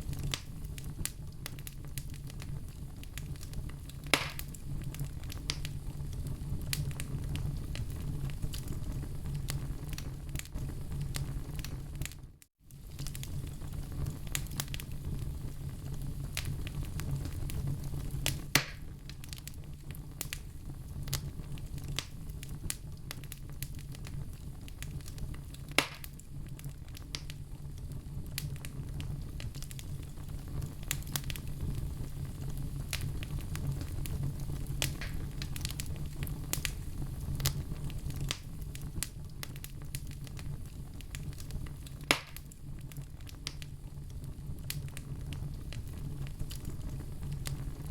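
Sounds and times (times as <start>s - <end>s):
fire pops and snaps: 0.0s - 47.9s
wood fire crackling: 0.0s - 47.9s.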